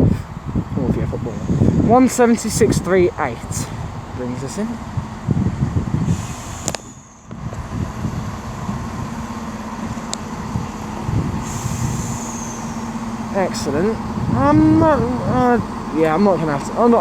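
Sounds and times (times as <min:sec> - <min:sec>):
train diesel engine rumbling: 0:00.0 - 0:17.0
faint high squeal: 0:06.5 - 0:07.3.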